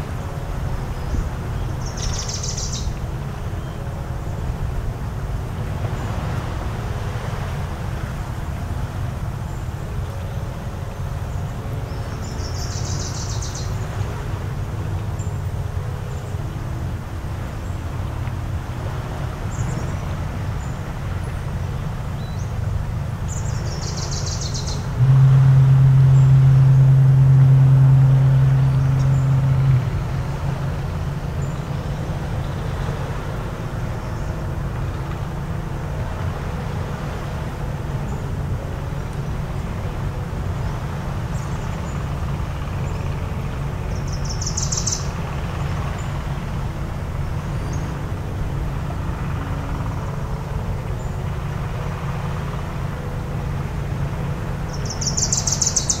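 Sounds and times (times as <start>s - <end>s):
low background rumble: 0.0s - 56.0s
foghorn blast: 25.0s - 31.3s.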